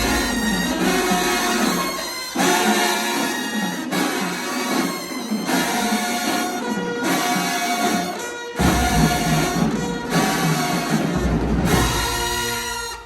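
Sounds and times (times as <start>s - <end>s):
bass drums: 0.0s - 1.4s
brass chords: 0.0s - 13.0s.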